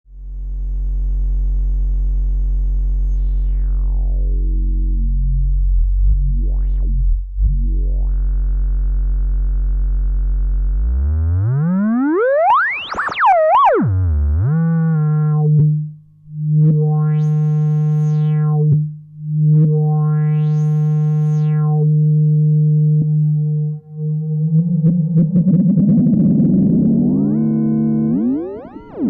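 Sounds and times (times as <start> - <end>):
low synth drone: 0.1 - 12.5, 13.6 - 29.0
bright rising synth whistle: 27.2 - 29.0.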